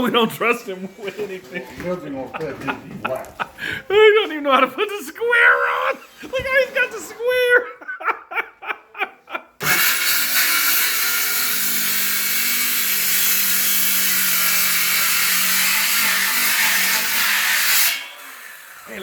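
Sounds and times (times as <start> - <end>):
circular saw cutting wood: 9.6 - 19.0.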